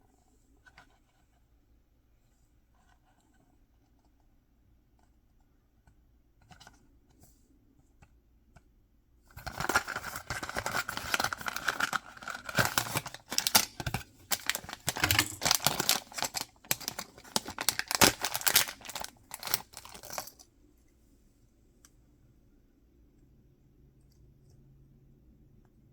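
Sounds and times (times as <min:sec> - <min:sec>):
wrapping tearing and crinkling: 0:09.4 - 0:20.4.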